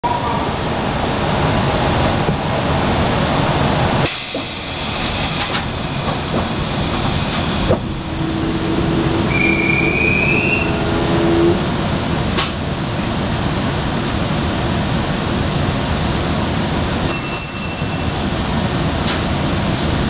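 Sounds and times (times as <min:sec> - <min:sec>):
train interior rumble: 0:00.0 - 0:20.0
steady hum: 0:04.9 - 0:13.3
faint rising whine: 0:06.9 - 0:12.1.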